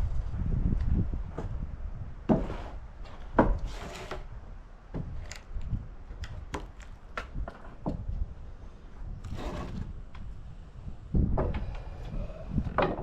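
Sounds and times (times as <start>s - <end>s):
wood sliding on wood: 2.2s - 4.3s, 9.2s - 10.3s, 11.4s - 13.0s.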